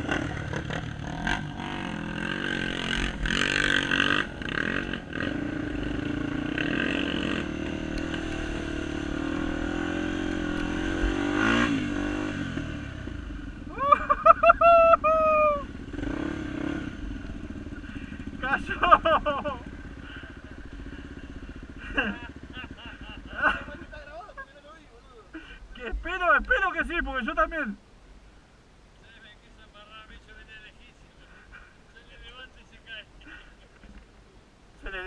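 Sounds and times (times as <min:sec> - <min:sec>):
dirt bike engines revving: 0:00.0 - 0:27.8.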